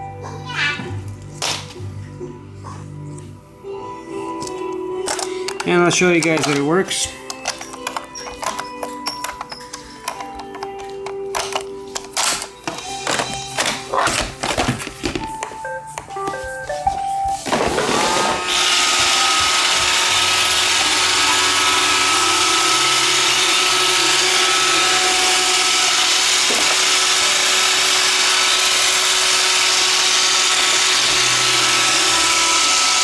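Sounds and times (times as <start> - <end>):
robot vacuum motors whirring: 17.5 - 33.0.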